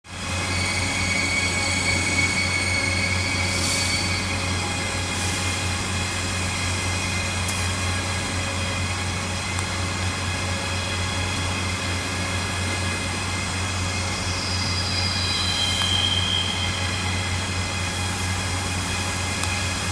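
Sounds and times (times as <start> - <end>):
hiss: 14.2 - 19.9.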